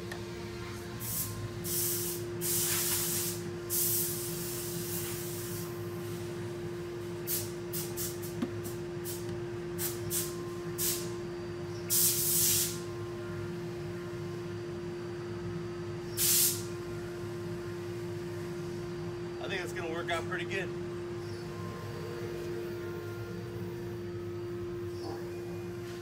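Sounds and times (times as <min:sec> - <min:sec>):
spraying hiss: 0:01.0 - 0:05.6, 0:11.9 - 0:12.8, 0:16.2 - 0:16.7
low hum: 0:20.7 - 0:26.0.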